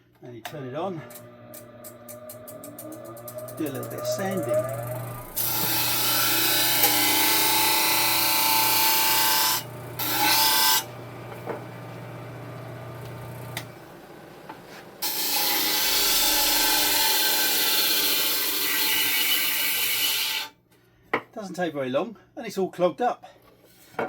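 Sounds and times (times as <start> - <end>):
power sander motor hum: 1.0 - 14.6.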